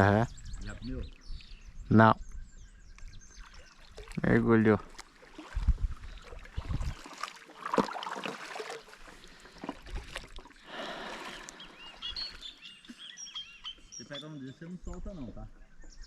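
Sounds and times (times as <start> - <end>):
birds chirping: 0.0 - 5.2, 5.9 - 7.2, 8.6 - 16.0
paddle strokes splashing water: 3.3 - 13.8.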